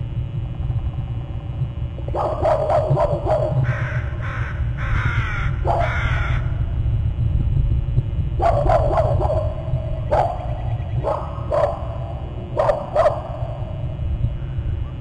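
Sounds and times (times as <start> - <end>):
steady low rumble: 0.0 - 15.0
crows cawing: 3.6 - 6.7.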